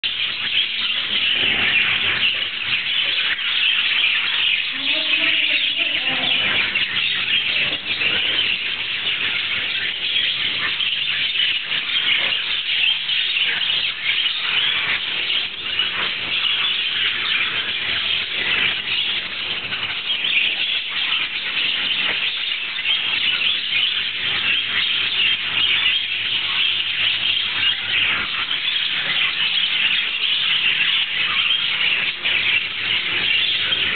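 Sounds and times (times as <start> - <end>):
lovebirds chattering and screeching: 0.0 - 33.9.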